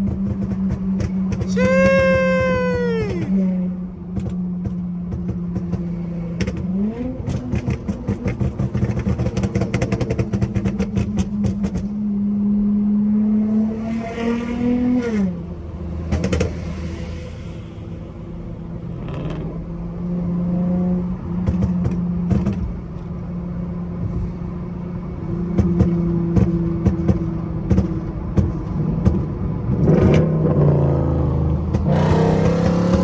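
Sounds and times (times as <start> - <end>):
car engine revving: 28.6 - 33.0.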